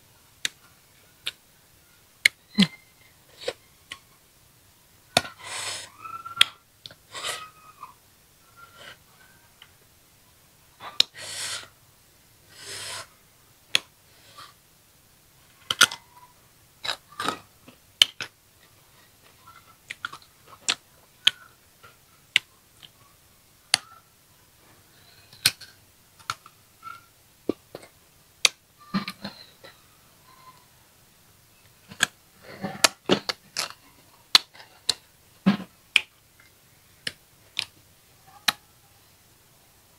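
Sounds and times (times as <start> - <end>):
brief hissing sounds: 12.6 - 13.1.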